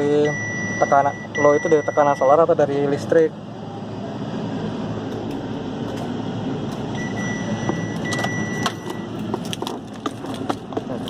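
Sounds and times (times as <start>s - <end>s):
low vehicle rumble: 0.0s - 11.0s
high electronic beep: 0.2s - 2.4s, 6.9s - 9.2s.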